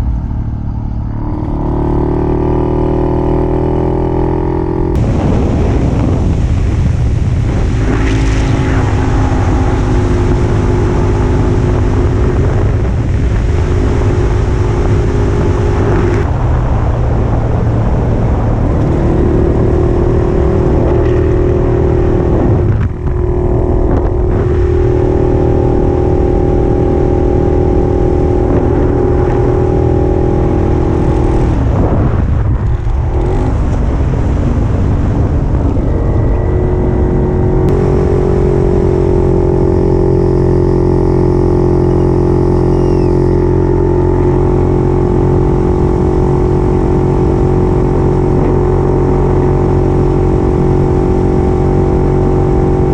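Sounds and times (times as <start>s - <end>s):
two-stroke motorcycle engine running: 17.6s - 52.9s.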